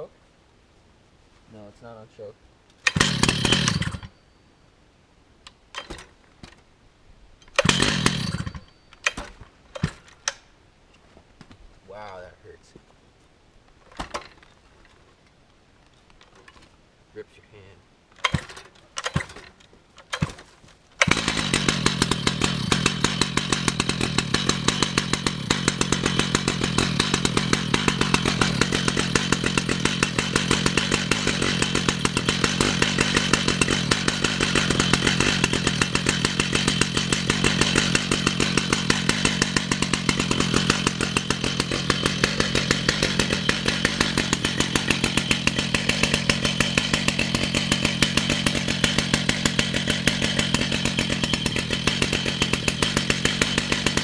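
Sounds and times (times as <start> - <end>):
chainsaw running: 2.8 - 4.2, 7.4 - 10.3, 18.2 - 54.0.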